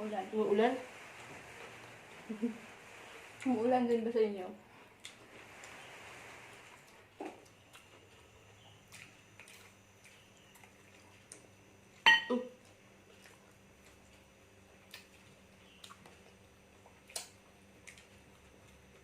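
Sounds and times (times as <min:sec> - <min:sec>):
sharp clink of tableware: 0:12.1 - 0:12.4.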